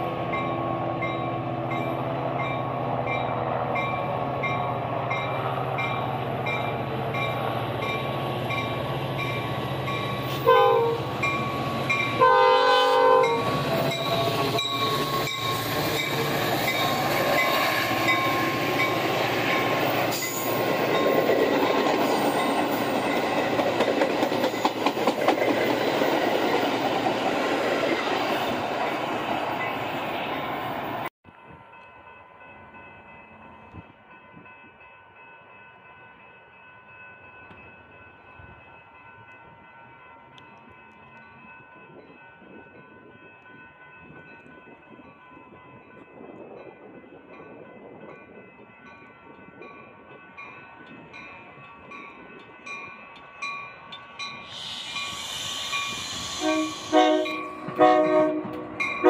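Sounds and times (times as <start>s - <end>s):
train wheels rumbling and clacking: 0.0s - 31.1s, 49.2s - 59.0s
train horn blasts: 10.2s - 11.2s, 12.0s - 15.6s, 55.9s - 59.0s.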